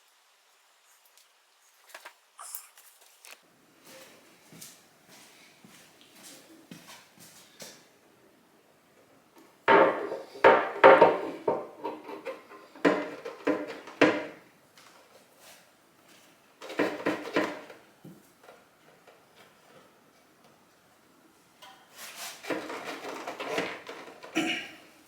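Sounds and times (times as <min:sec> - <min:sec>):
tools clattering on a workbench: 0:09.7 - 0:14.4, 0:16.6 - 0:17.8, 0:21.6 - 0:24.6.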